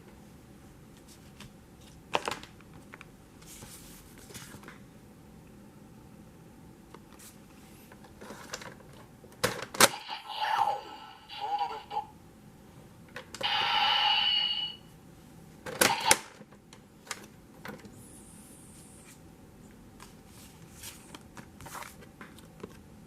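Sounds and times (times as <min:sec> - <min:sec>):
hissing effect with tone: 0:13.4 - 0:14.8.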